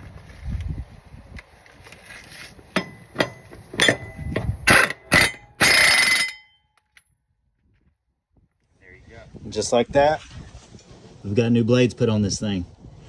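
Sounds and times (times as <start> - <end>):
pneumatic impact wrench hammering: 2.8 - 6.4.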